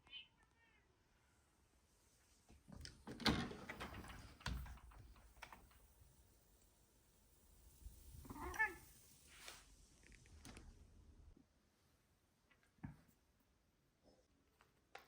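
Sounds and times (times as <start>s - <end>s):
knocks and rustles: 2.5s - 6.0s.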